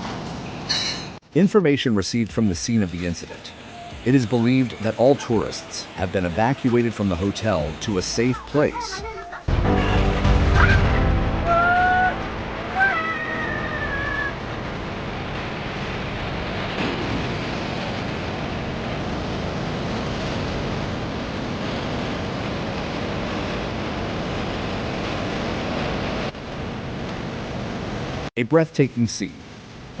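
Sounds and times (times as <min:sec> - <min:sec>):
steady rushing noise: 0:01.3 - 0:28.3
cat meowing: 0:11.5 - 0:14.4.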